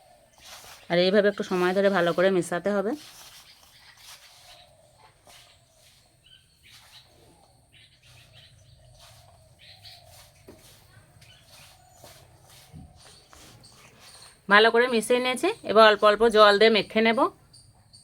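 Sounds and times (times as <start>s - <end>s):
hands mixing dough in bowl: 0.3s - 7.1s, 8.9s - 16.3s
faint bird chirps: 3.2s - 18.0s.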